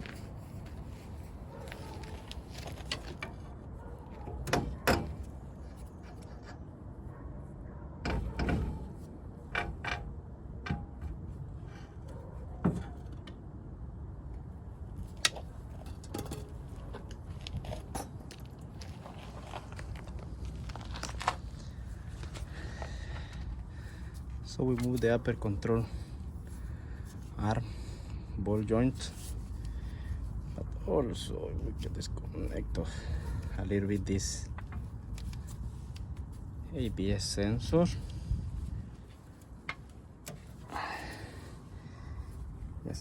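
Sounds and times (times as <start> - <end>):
low background hum: 0.0 - 43.0
metal tools clinking and knocking: 15.7 - 16.7.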